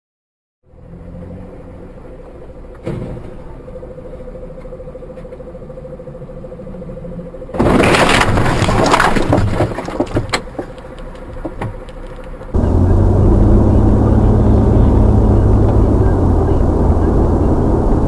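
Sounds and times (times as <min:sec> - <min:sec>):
car road noise: 0:00.6 - 0:09.1, 0:09.9 - 0:18.0
faint steady hum: 0:01.7 - 0:08.4
loud car crash impact: 0:07.6 - 0:10.2.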